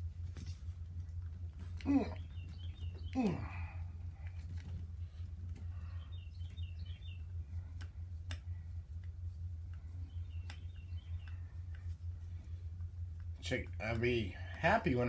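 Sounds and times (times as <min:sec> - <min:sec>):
steady low hum: 0:00.0 - 0:15.0
bird chirping: 0:01.8 - 0:03.8, 0:05.7 - 0:07.7, 0:09.9 - 0:11.6.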